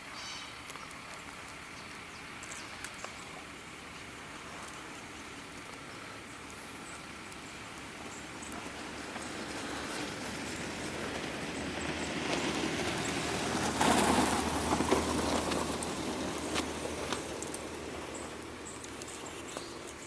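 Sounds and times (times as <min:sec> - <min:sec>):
truck driving past: 0:08.4 - 0:18.7.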